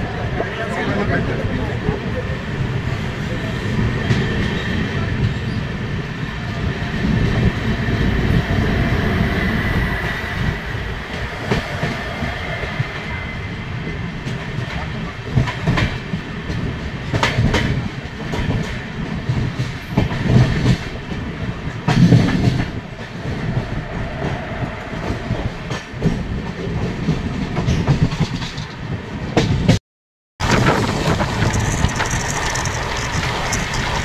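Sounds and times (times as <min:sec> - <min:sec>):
train rumbling: 0:00.0 - 0:29.8, 0:30.4 - 0:34.0
wheels clattering over rail joints: 0:30.4 - 0:34.0.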